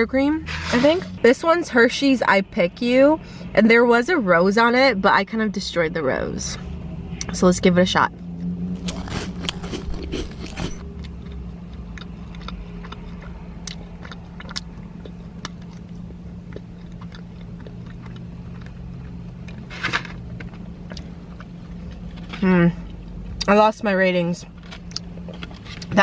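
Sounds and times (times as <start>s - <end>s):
biting into doughnut: 8.8s - 10.8s
chewing with small clicks: 16.5s - 19.6s, 20.3s - 22.3s.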